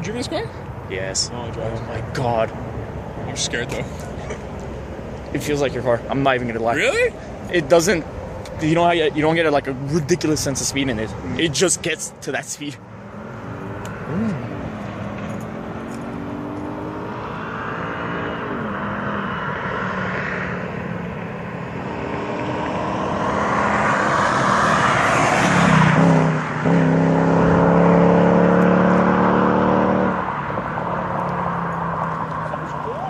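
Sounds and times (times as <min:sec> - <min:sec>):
car accelerating past: 0:13.0 - 0:33.0.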